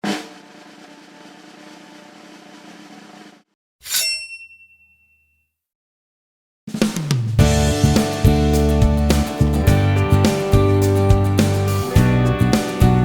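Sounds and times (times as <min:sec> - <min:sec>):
bright metallic ding: 0:03.8 - 0:05.4.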